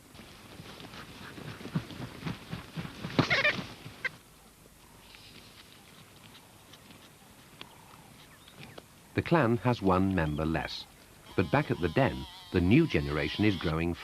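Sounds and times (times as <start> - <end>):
vultures squabbling harsh calls: 3.2 - 4.2, 10.9 - 13.8.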